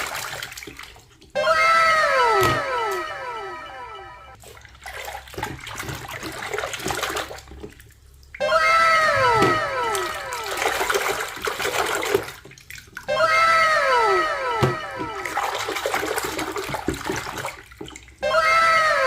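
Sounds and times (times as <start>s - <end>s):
repeated falling tones: 1.4s - 4.4s, 8.4s - 10.9s, 13.1s - 15.5s, 18.2s - 19.0s
water rushing and splashing: 2.0s - 19.0s.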